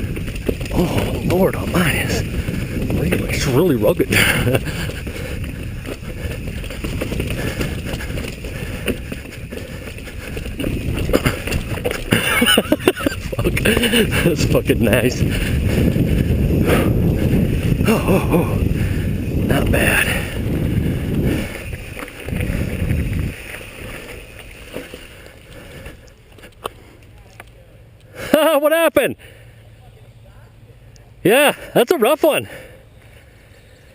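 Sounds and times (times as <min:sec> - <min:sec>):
bike clicks and knocks: 0:00.0 - 0:01.3, 0:04.4 - 0:13.9
bike rattling over rocky trail: 0:00.0 - 0:27.8
wind and tyre rumble: 0:00.0 - 0:33.9.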